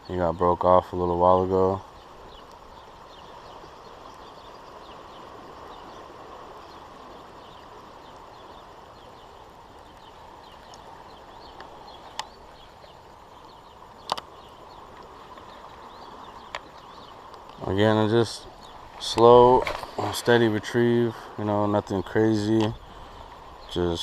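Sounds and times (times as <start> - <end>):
faint bird chirps: 1.6 - 24.0
sharp clicks: 14.0 - 14.3.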